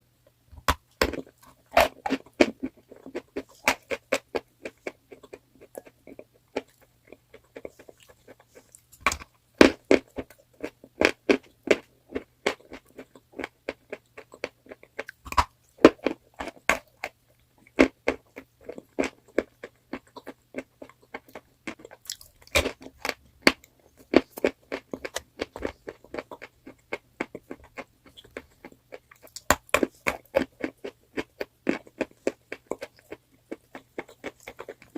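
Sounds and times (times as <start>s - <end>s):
chewing crunchy chalk: 1.0s - 34.9s.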